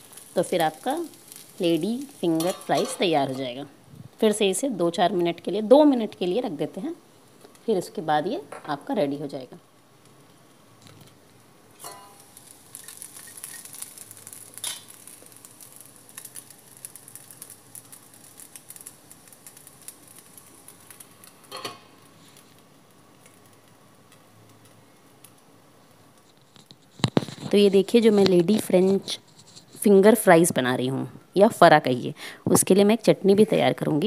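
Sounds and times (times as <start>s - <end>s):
food sizzling in oil: 0.0s - 26.3s.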